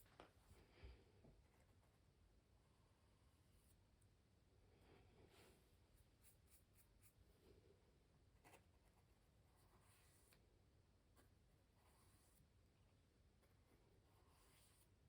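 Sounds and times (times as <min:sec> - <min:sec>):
scratchy brush strokes on canvas: 0:05.3 - 0:07.2, 0:13.6 - 0:15.0.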